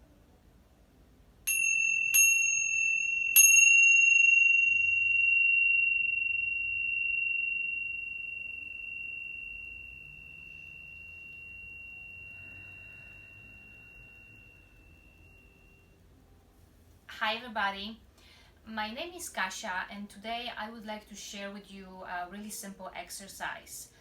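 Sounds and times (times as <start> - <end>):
high-pitched metal chime: 1.5 - 16.0.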